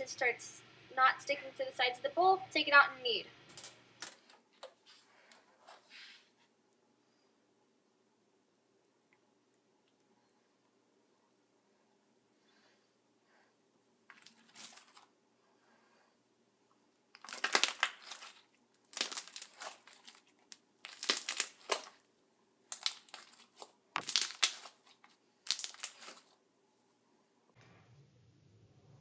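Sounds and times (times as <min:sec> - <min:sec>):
slime being squeezed crackling: 0:17.2 - 0:22.0, 0:22.7 - 0:26.3.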